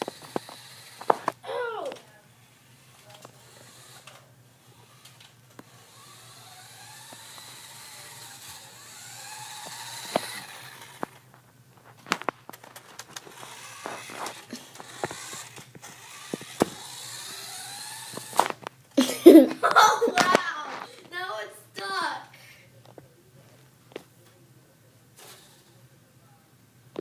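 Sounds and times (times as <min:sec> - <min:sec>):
toy car electric motor whining: 0:00.0 - 0:11.2, 0:12.6 - 0:19.4, 0:25.2 - 0:25.8.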